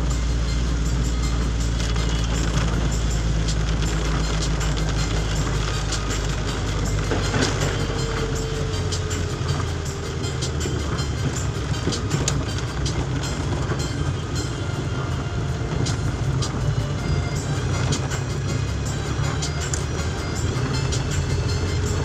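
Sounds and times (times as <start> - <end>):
heavy rain: 0.0 - 22.0.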